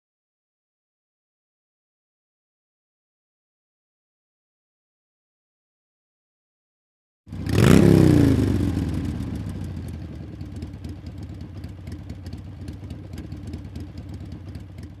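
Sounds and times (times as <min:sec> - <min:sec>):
motorcycle engine idling: 0:07.3 - 0:15.0
motorcycle engine revving: 0:07.3 - 0:15.0.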